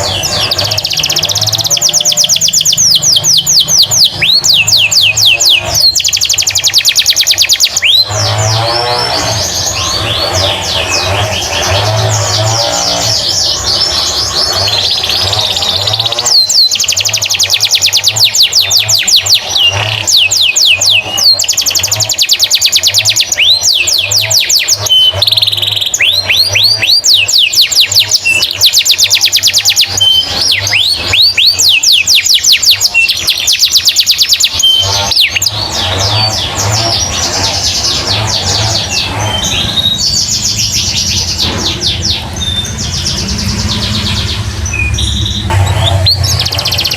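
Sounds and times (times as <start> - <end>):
canary singing: 0.0 - 46.9.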